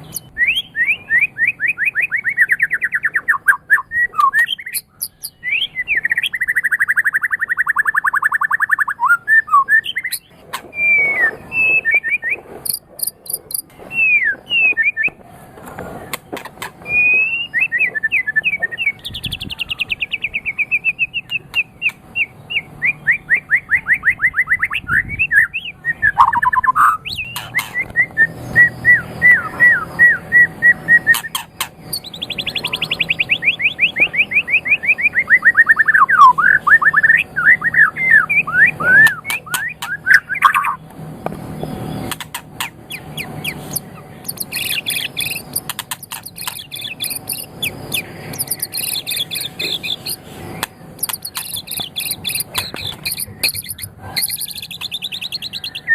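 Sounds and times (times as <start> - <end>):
sharp bird clicks: 0.0 - 0.3, 2.4 - 5.4, 12.6 - 13.8, 26.2 - 28.0, 42.0 - 55.8
bird singing whistled song: 0.0 - 15.2, 16.8 - 40.8, 42.9 - 55.9.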